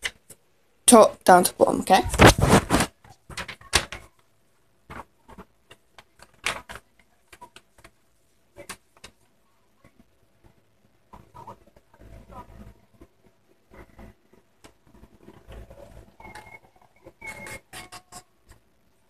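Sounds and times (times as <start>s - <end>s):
paper rustling and crinkling: 2.0s - 4.1s.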